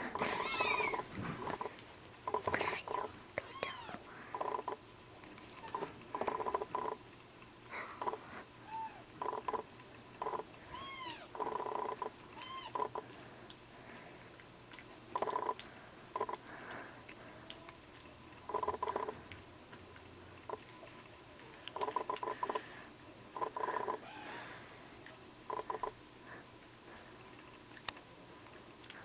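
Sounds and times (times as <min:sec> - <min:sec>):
kittens mewing: 0:00.0 - 0:01.7, 0:23.7 - 0:24.5.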